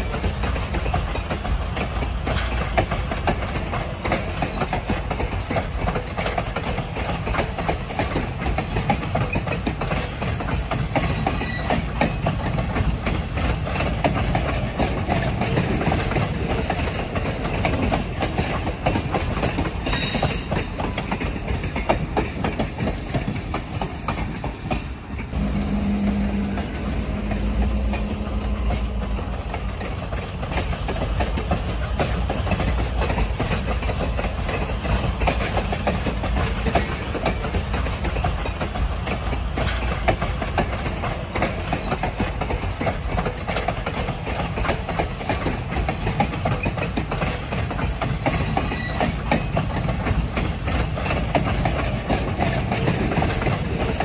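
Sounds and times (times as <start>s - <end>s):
train rumbling over bridge: 0.0s - 54.0s
wheels clickety-clack: 0.0s - 54.0s
high-pitched wheel squeal: 2.2s - 2.8s, 4.4s - 4.9s, 11.0s - 11.9s, 19.8s - 20.6s, 39.5s - 40.1s, 48.3s - 49.2s.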